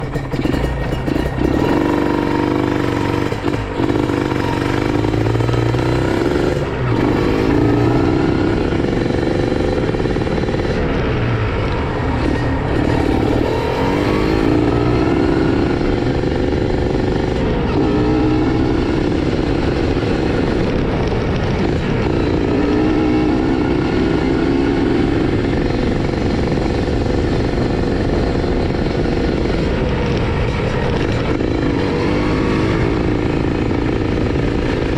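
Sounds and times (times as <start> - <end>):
motorcycle engine idling: 0.0 - 7.1, 7.9 - 13.4.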